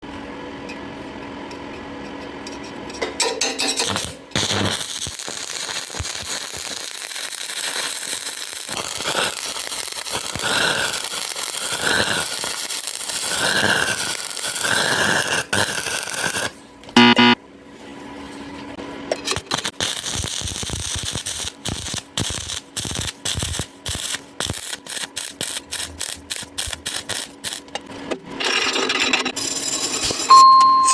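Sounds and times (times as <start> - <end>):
welding arc crackling and hissing: 3.7 - 17.4, 19.2 - 27.7.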